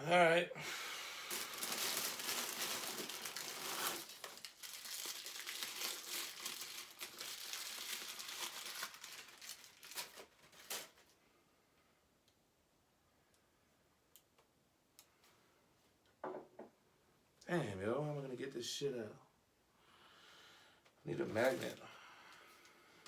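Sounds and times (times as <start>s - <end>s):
packaging crinkling and rustling: 1.2s - 11.2s, 21.2s - 21.8s.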